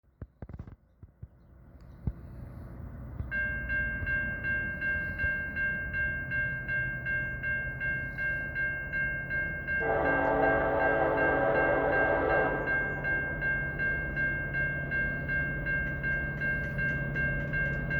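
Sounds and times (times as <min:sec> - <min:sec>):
freight train rumble: 0:00.8 - 0:17.9
railroad crossing bell ringing: 0:03.0 - 0:17.9
locomotive air horn: 0:09.8 - 0:13.8.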